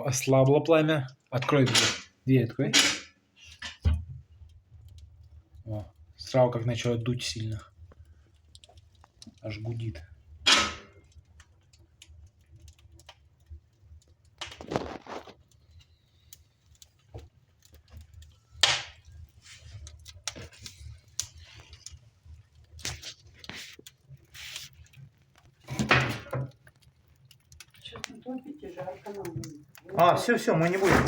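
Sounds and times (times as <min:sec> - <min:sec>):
fire crackling: 0:00.0 - 0:31.0
fireplace draught humming: 0:00.0 - 0:31.0
knocks in fireplace: 0:02.7 - 0:04.2, 0:10.4 - 0:11.1, 0:18.6 - 0:19.0, 0:25.6 - 0:26.6.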